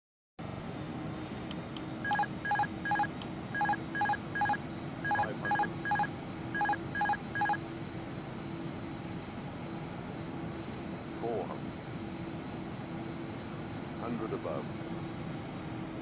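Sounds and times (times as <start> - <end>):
cockpit air noise with low hum: 0.4 - 16.0
short electronic beeps: 2.0 - 7.6.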